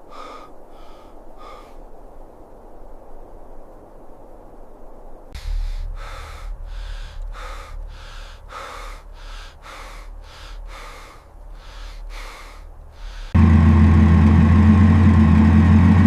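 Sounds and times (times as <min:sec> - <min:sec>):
person breathing hard: 0:00.0 - 0:02.1, 0:05.4 - 0:13.4
low hum: 0:00.0 - 0:16.0.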